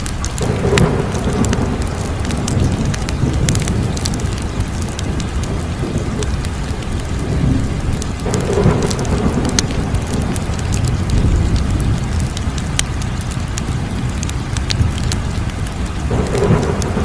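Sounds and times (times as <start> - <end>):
fire crackling: 0.0 - 17.0
low fire rumble: 0.0 - 17.0.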